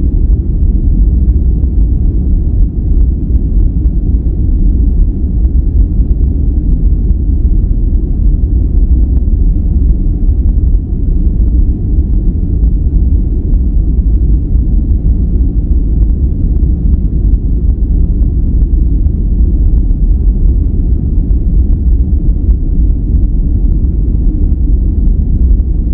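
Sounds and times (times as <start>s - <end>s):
deep steady rushing noise: 0.0s - 25.9s.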